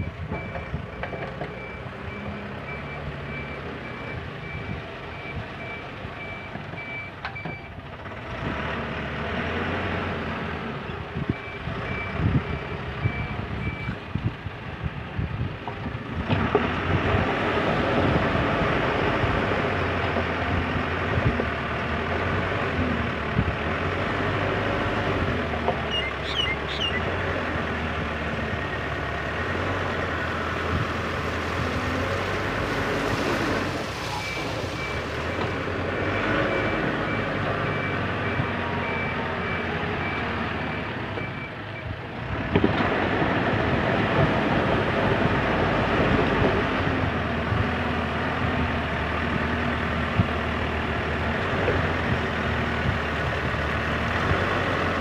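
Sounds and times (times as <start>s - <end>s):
diesel engine running under load: 0.0s - 55.0s
reversing alarm beeping: 34.1s - 41.9s.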